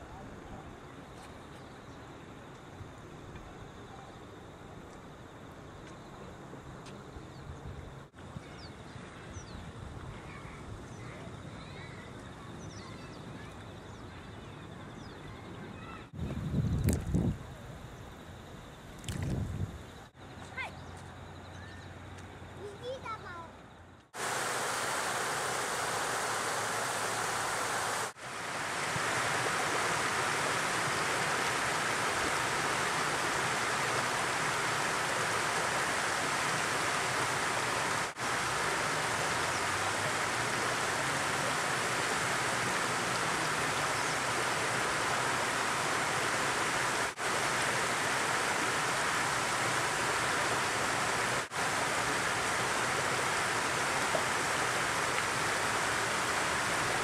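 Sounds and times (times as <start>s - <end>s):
water rushing: 24.2s - 57.0s.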